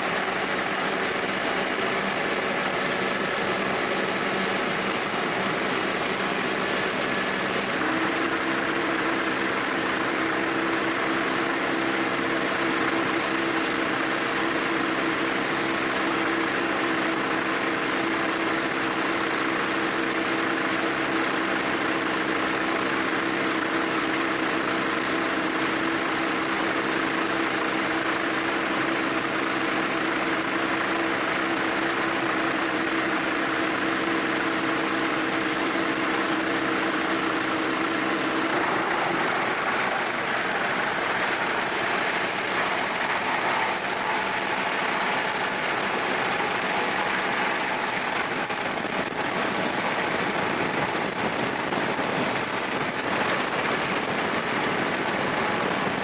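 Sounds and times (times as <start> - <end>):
machinery droning: 0.0 - 56.0.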